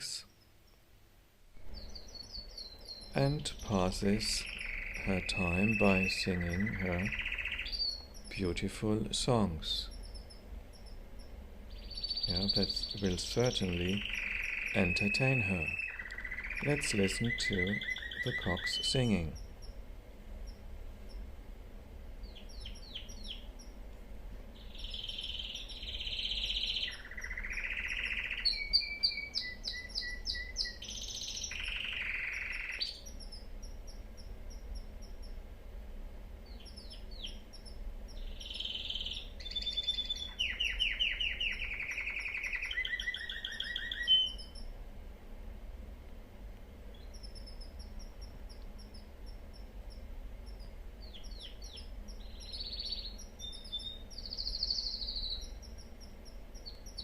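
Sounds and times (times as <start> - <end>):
faint high chirps: 1.6 - 19.8, 36.4 - 44.7, 46.9 - 57.0
canary singing trills: 1.6 - 21.4, 22.2 - 23.9, 24.5 - 35.5, 36.3 - 44.8, 46.7 - 57.0.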